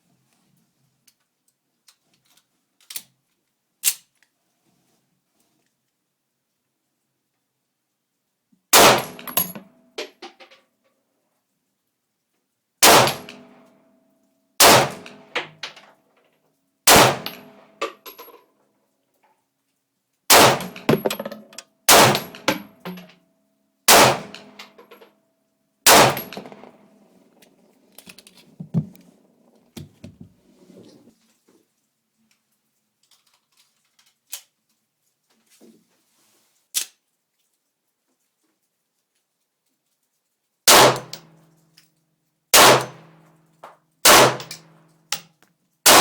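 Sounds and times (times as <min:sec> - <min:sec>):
pistol shots: 0:08.8 - 0:09.6, 0:12.8 - 0:13.4, 0:14.6 - 0:15.3, 0:16.9 - 0:17.6, 0:20.3 - 0:22.8, 0:23.9 - 0:24.6, 0:25.9 - 0:27.0, 0:40.7 - 0:41.2, 0:42.6 - 0:43.0, 0:44.1 - 0:44.6
metallic clinks: 0:09.0 - 0:09.7, 0:20.6 - 0:23.1, 0:26.1 - 0:27.2.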